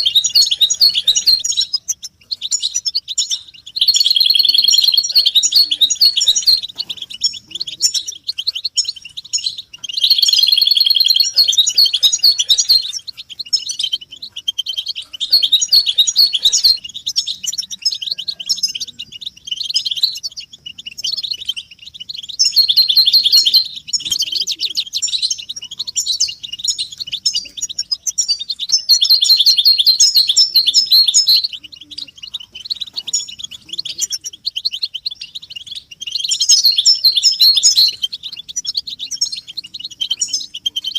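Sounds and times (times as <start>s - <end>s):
goldfinches twittering: 0.0s - 40.9s.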